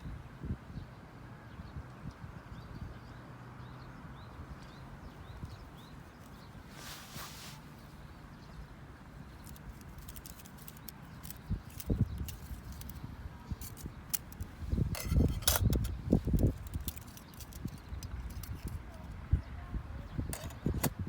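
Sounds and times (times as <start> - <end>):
rustling: 5.4 - 19.0.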